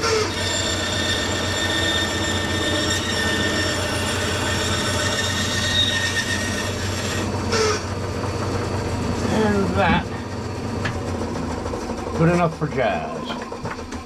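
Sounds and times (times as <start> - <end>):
power tool whining while cutting wood: 0.0 - 14.0.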